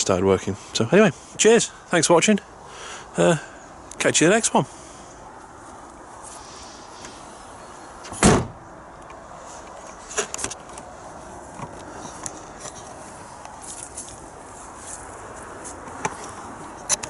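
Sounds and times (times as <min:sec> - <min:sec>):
loud heavy thump: 0:08.2 - 0:08.6.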